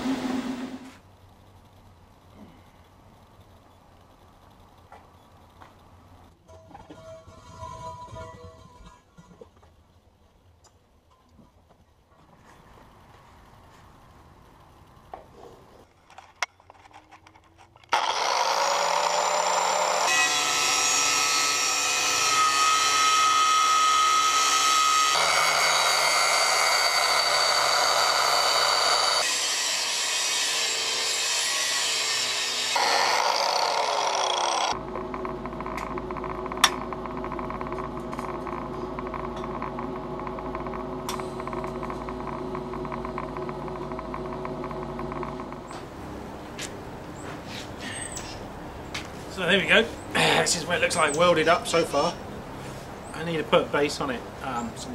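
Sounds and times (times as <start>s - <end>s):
angle grinder grinding steel: 17.9s - 34.8s
steady hum: 34.7s - 47.8s.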